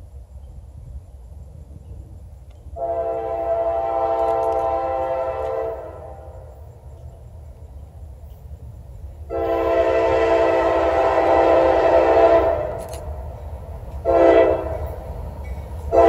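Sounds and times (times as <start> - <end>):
low rumble of approaching train: 0.0 - 16.0
locomotive air horn blast: 2.8 - 6.5, 9.3 - 13.0, 14.0 - 15.0.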